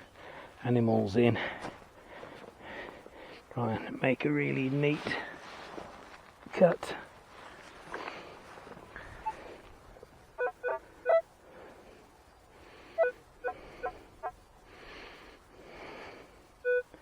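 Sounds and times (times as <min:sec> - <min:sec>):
scuffing of soil and grass: 0:04.4 - 0:10.1
metal detector beeps: 0:10.4 - 0:11.2, 0:13.0 - 0:13.9, 0:16.6 - 0:17.0.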